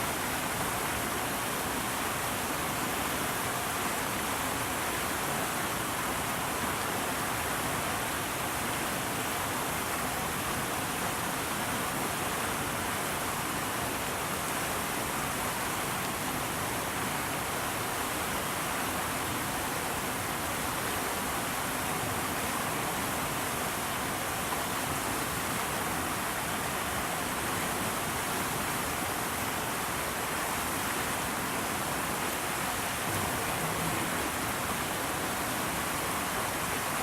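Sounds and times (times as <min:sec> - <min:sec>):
steady rushing noise: 0:32.2 - 0:36.6.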